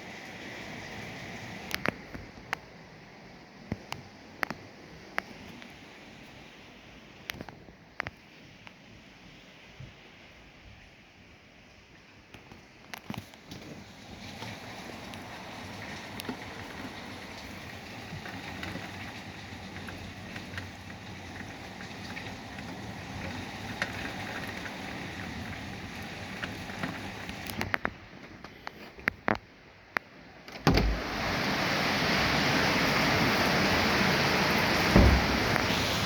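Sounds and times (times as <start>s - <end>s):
wind-driven rain: 0.0s - 36.0s
sharp knocks: 34.9s - 35.7s.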